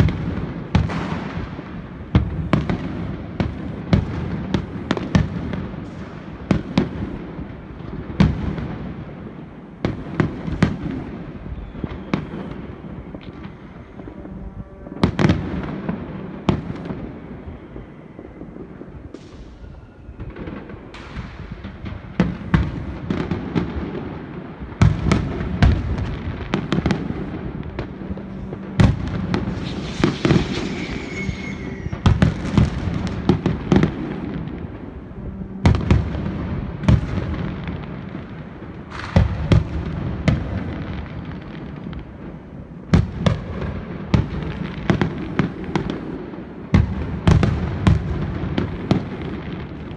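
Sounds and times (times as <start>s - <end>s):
fireworks crackling: 0.0s - 49.9s
firework shells bursting: 26.6s - 34.2s.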